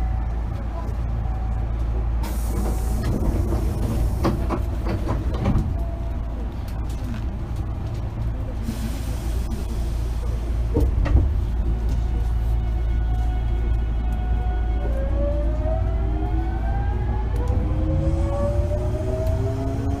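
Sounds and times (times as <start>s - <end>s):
train car low hum: 0.0s - 20.0s
hiss: 8.6s - 10.3s.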